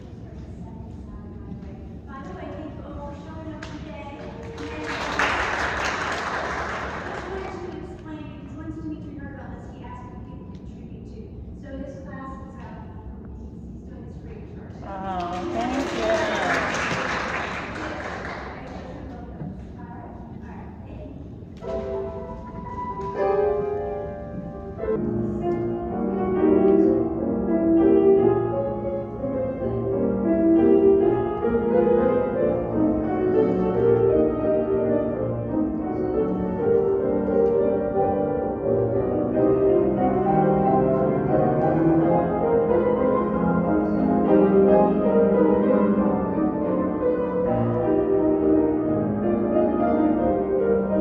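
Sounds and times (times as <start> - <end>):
classical piano music: 0.0 - 8.5, 21.4 - 51.0.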